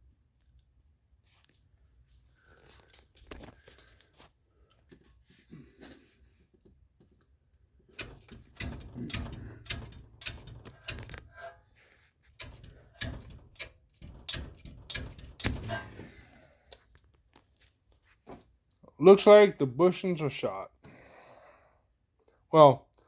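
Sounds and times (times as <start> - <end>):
suspension knocks and clunks: 7.9 - 11.7, 12.3 - 16.3.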